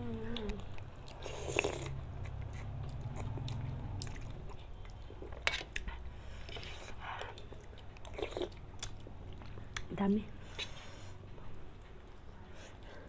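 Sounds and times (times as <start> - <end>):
mouth chewing and smacking: 0.1 - 10.0.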